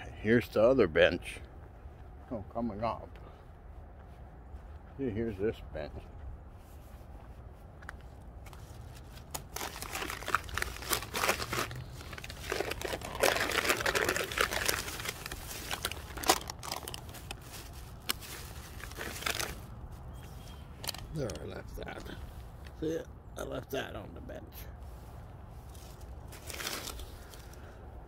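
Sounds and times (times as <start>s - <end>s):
chip packet rustling: 9.0s - 19.8s, 25.8s - 27.6s.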